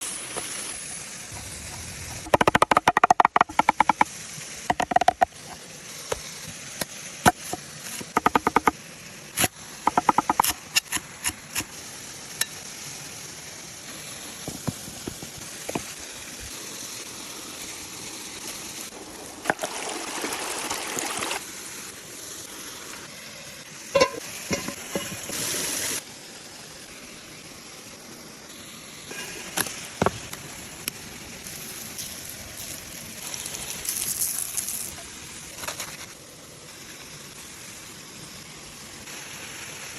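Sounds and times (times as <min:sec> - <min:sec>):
food sizzling on hot stone: 0:00.0 - 0:19.0, 0:21.4 - 0:39.9
handling clicks and knocks: 0:02.3 - 0:04.0, 0:04.7 - 0:05.3, 0:24.0 - 0:25.4.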